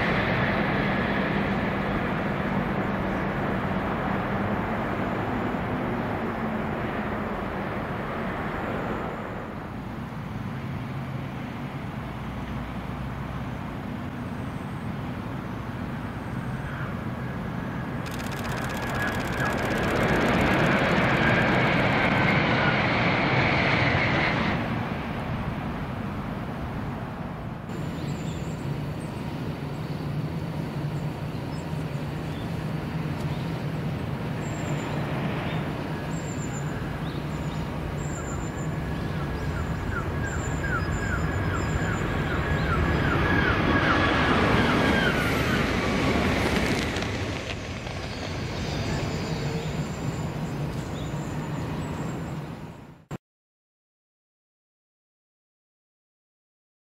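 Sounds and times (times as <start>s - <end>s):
train passing at speed: 0.0s - 17.8s, 19.7s - 52.8s
low hum: 17.9s - 23.0s
faint high chirps: 18.1s - 21.8s.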